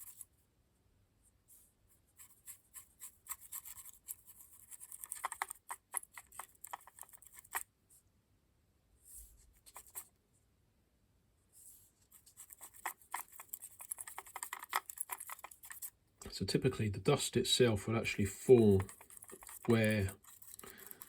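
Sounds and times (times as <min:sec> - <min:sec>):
stiff paintbrush scrubbing: 0:00.0 - 0:00.3, 0:02.0 - 0:07.6, 0:09.4 - 0:10.1, 0:11.9 - 0:16.0, 0:17.8 - 0:21.0.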